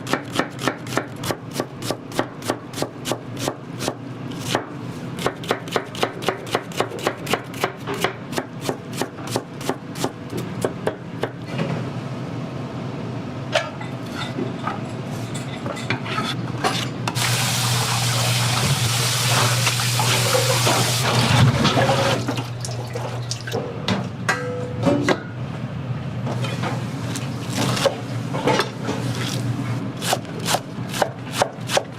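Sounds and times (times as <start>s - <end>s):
knife chopping on cutting board: 0.0s - 11.4s, 30.0s - 31.9s.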